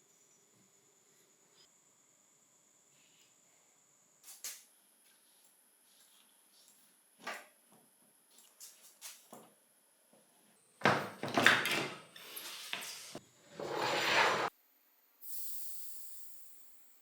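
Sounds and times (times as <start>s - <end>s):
rustling scraping work noise: 12.4s - 14.5s.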